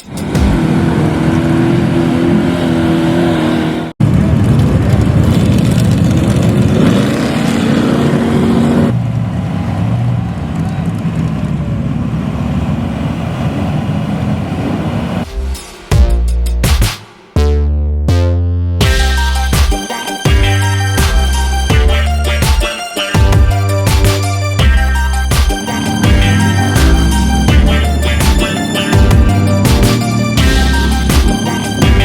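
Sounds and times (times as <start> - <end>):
truck engines revving loudly: 0.0 - 15.3, 23.6 - 32.0.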